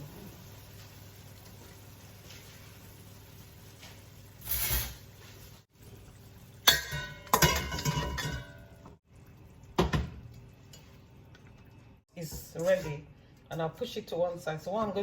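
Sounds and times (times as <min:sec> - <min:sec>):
metal cookware clanking: 0:04.4 - 0:05.1, 0:06.6 - 0:08.9.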